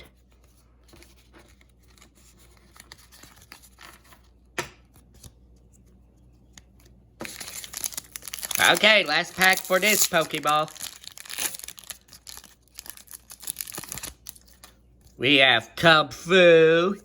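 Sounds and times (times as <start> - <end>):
cards rustling and tapping: 0.0 - 14.8
wrapper crinkling: 7.2 - 14.8.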